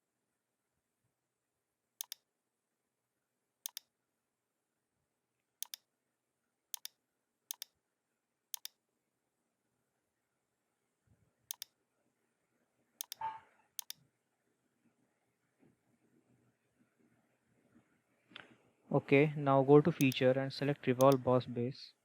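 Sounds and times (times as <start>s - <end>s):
computer mouse double clicks: 13.0s - 13.2s.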